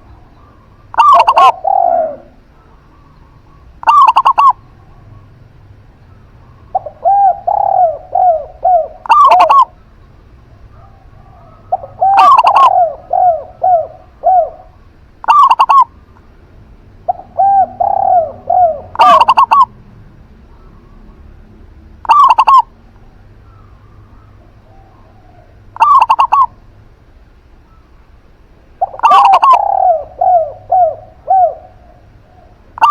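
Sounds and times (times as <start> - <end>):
loud short dove calls: 0.0 - 5.2, 6.1 - 9.8, 10.7 - 15.9, 17.1 - 19.7, 22.0 - 22.7, 23.4 - 26.6, 28.8 - 32.9
doves cooing: 0.0 - 16.2, 16.9 - 21.4, 22.0 - 26.7, 28.7 - 32.9.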